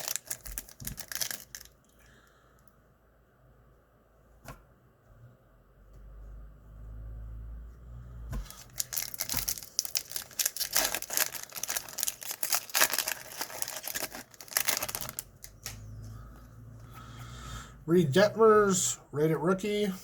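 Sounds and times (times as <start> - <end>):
wrapper tearing and crinkling: 0.0 - 1.8, 8.4 - 15.8.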